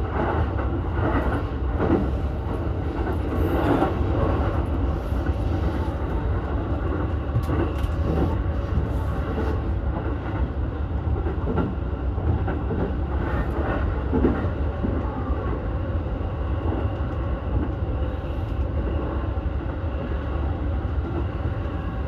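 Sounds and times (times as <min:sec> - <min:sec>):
faint clickety-clack: 0:00.0 - 0:22.0
train wheels rumbling on rail: 0:00.0 - 0:22.0.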